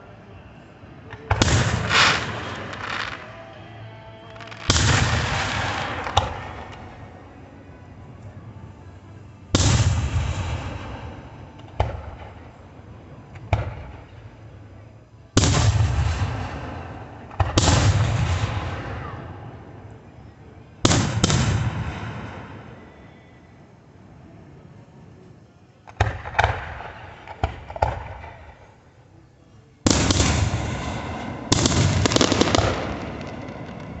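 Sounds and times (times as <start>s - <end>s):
fireworks booming: 1.1s - 3.5s, 4.2s - 7.0s, 9.5s - 12.6s, 15.4s - 19.6s, 20.8s - 22.9s, 29.9s - 34.0s
sharp firework cracks: 1.3s - 3.4s, 4.3s - 6.8s, 9.6s - 11.0s, 15.4s - 19.0s, 29.9s - 34.0s.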